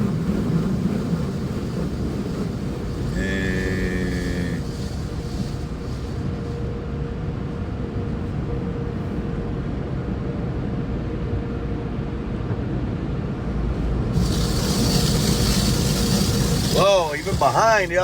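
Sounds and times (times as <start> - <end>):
water spray hitting car: 0.0 - 6.4, 14.1 - 18.0
car wash low rumble: 0.0 - 18.0.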